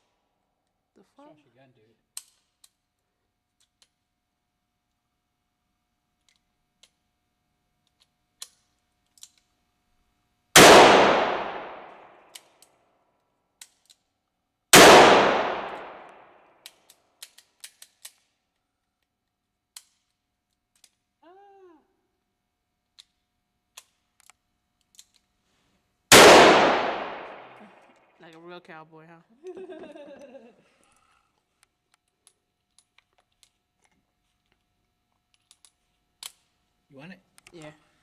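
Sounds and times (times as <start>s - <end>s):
gun handling clicks and taps: 2.1s - 4.1s, 6.2s - 7.0s, 7.8s - 9.6s, 11.9s - 14.4s, 15.6s - 21.1s, 22.8s - 25.4s, 31.0s - 36.6s, 37.3s - 37.7s
gunshots: 10.6s - 12.1s, 14.8s - 16.2s, 26.1s - 27.7s.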